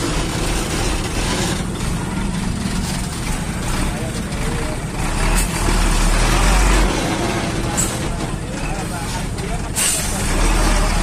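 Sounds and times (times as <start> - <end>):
truck diesel engine running: 0.0 - 11.0
people talking: 3.5 - 11.0.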